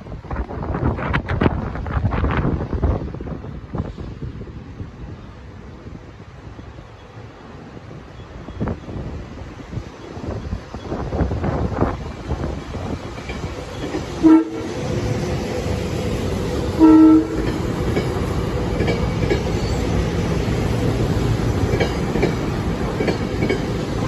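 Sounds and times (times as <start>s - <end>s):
train rumbling past: 0.0s - 24.0s
train horn blasts: 14.2s - 15.0s, 16.7s - 17.6s
wheels clicking over rail joints: 14.9s - 24.0s.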